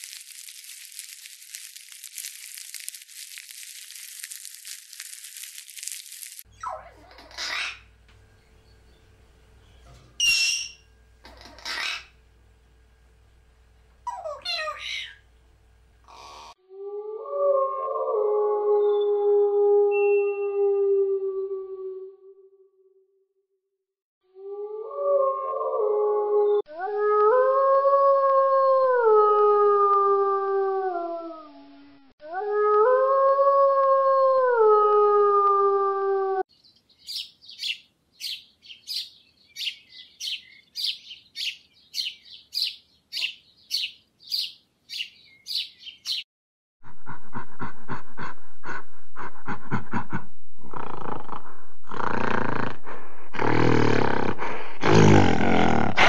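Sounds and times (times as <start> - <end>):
wolf howling: 16.9 - 22.3, 24.4 - 36.4
finches chirping: 36.5 - 46.2.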